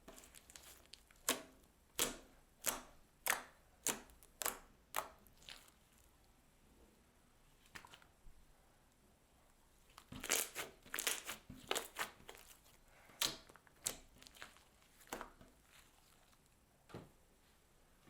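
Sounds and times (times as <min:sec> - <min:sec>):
slime crackling and popping: 0:10.0 - 0:12.6.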